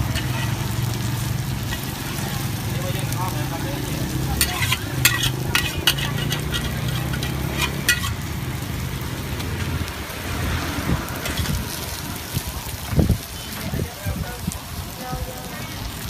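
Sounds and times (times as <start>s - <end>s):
food sizzling on a hot pan: 0.0s - 16.0s
cooking utensil clicks and taps: 4.4s - 8.2s.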